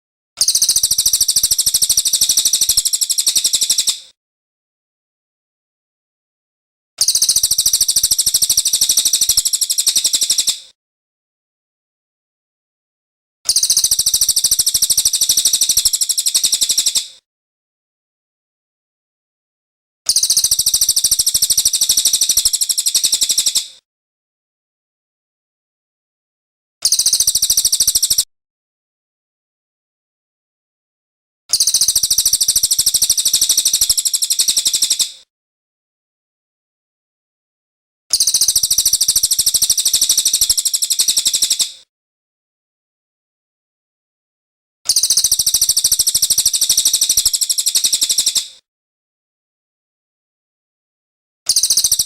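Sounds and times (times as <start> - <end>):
bird singing rapid trill: 0.4 - 4.0, 7.0 - 10.6, 13.5 - 17.1, 20.1 - 23.7, 26.8 - 28.3, 31.5 - 35.1, 38.1 - 41.7, 44.9 - 48.4, 51.5 - 52.0.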